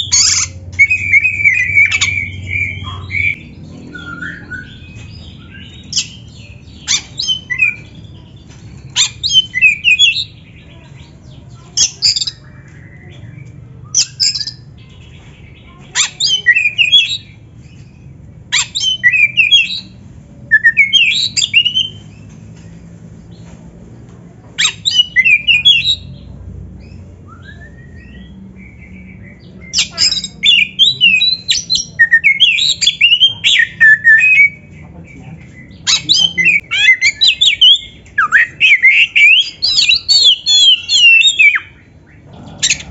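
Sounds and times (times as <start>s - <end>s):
bird singing whistled notes: 27.2s - 34.7s, 35.6s - 41.8s.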